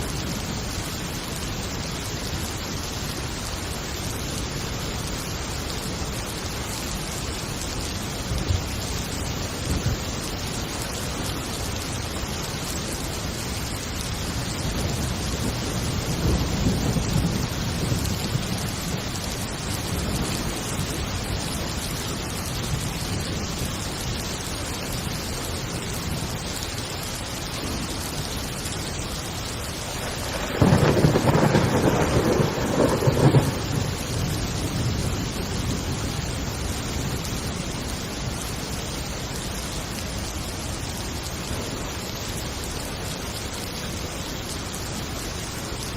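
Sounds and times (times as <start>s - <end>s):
heavy rain: 0.0s - 45.9s
low thunder rumble: 14.4s - 21.7s, 29.7s - 37.8s
loud thunderclap: 29.9s - 35.9s.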